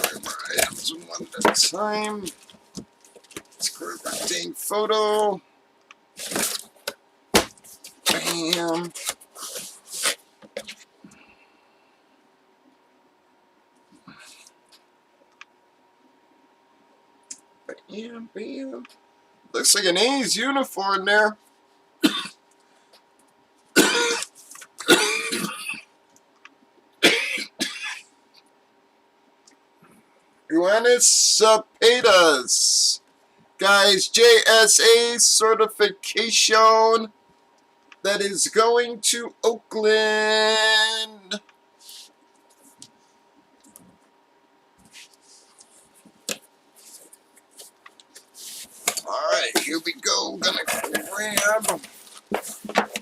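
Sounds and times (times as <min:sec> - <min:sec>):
packaging rustling: 0:00.0 - 0:04.4, 0:06.2 - 0:10.8, 0:50.4 - 0:53.0
faint steady hum: 0:00.0 - 0:53.0
man coughing: 0:22.0 - 0:22.4, 0:23.8 - 0:25.9, 0:27.0 - 0:28.0.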